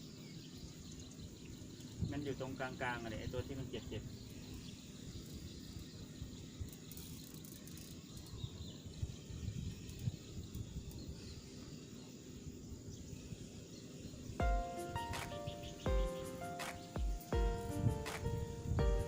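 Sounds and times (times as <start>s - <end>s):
faint insects chirping: 0.0s - 19.0s
wind rumble on microphone: 8.3s - 11.7s, 17.4s - 19.0s.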